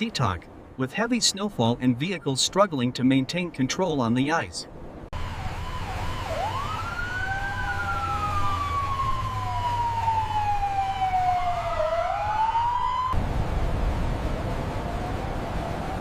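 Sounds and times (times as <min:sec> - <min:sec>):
emergency siren wailing: 0:05.2 - 0:16.0.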